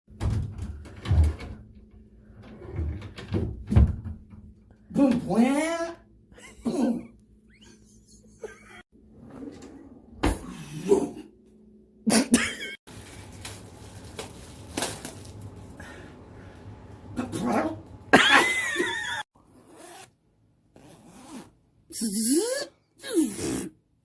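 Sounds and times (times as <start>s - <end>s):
person making squealing vocal noises: 21.9s - 23.7s.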